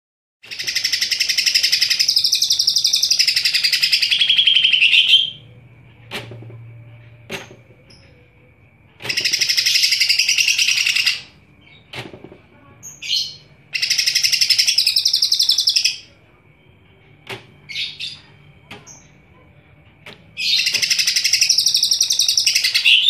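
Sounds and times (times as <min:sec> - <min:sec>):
bird chattering song: 0:00.5 - 0:05.6, 0:09.0 - 0:11.9, 0:12.8 - 0:16.2, 0:17.7 - 0:19.2, 0:20.4 - 0:23.0.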